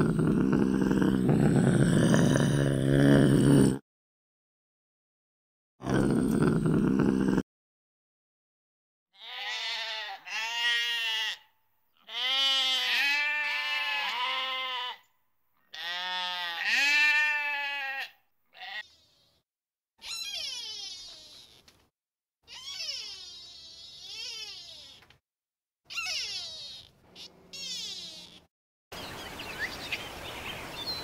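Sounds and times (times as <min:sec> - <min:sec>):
sheep bleating: 0:09.2 - 0:15.1, 0:15.7 - 0:18.9.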